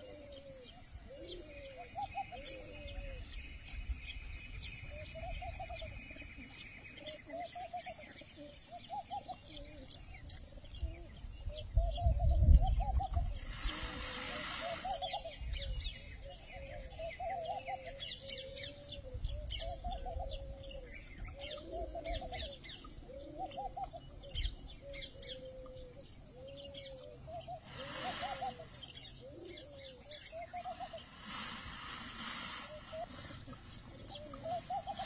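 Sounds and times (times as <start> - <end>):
small birds high chirps: 0.0 - 35.0
bird low arching call: 10.8 - 35.0
brief rustling hiss: 13.4 - 15.2, 27.7 - 28.7, 30.8 - 33.6.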